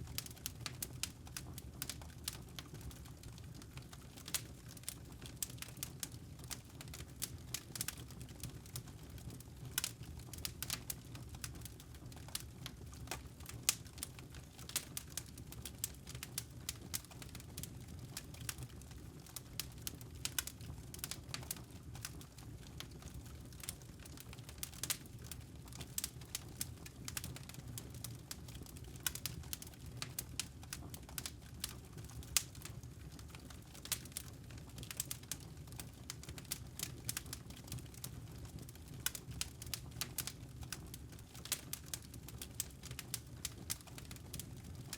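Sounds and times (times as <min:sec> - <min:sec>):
low rumble of flames: 0:00.0 - 0:44.9
campfire logs crackling: 0:09.7 - 0:44.9.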